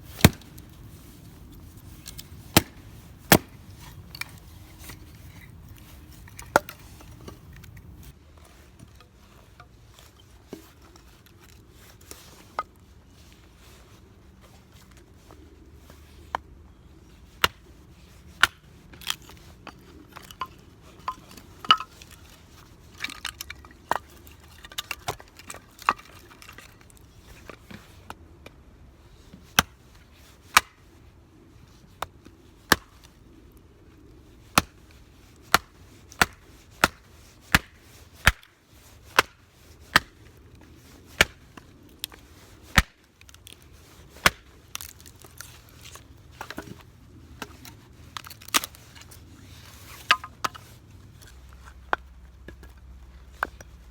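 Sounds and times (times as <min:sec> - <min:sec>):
chopping knocks: 0:02.6 - 0:03.6.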